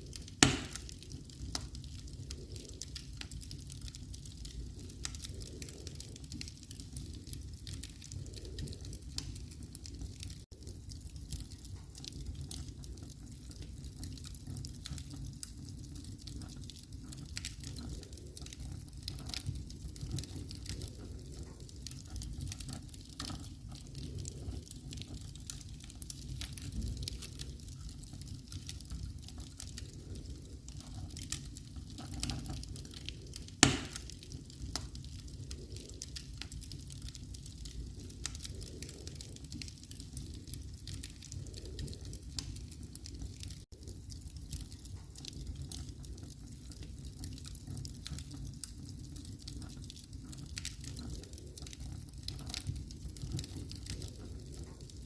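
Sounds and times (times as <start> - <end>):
fire crackles: 0.0 - 55.0
fire rumbling: 0.0 - 55.0
loud fire pop: 0.4 - 0.9, 33.6 - 34.1.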